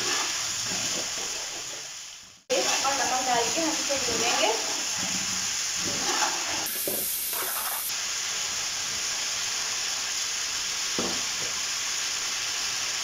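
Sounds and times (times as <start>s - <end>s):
chicken sizzling in oil: 0.0s - 13.0s
metal spatula stirring: 2.5s - 6.7s
spatula scrapes: 4.1s - 7.9s.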